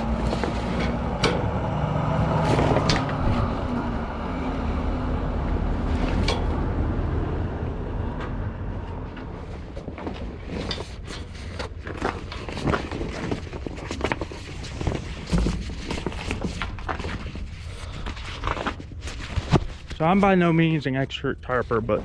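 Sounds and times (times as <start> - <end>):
tarp rustling and crackling: 0.0 - 1.2, 2.1 - 4.1, 9.1 - 20.8
vehicle engine running: 0.0 - 10.4.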